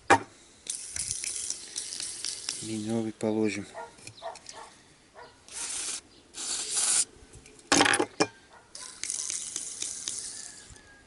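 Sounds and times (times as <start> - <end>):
aerosol spray hissing: 5.5 - 7.1.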